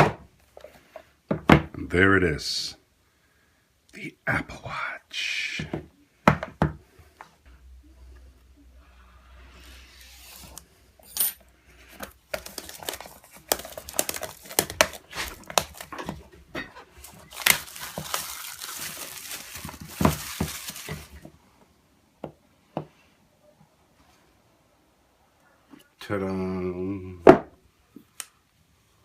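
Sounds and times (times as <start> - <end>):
packaging rustling: 11.9 - 21.3.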